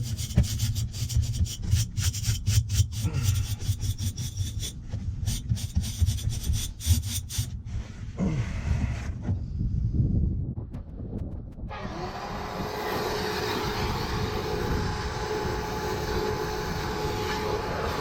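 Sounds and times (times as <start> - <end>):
stiff brush scrubbing metal fins: 0.0 - 7.6
steady low hum: 0.0 - 18.0.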